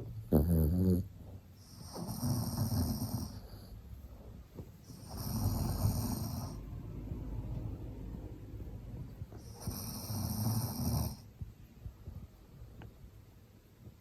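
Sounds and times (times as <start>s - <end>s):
dog snoring: 0.0s - 3.9s, 4.8s - 6.8s, 9.3s - 11.4s.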